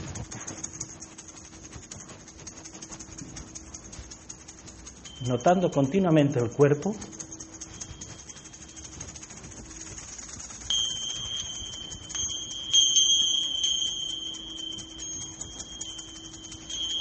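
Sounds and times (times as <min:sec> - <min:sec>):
metal chime ringing: 0:05.0 - 0:09.0, 0:10.6 - 0:17.0.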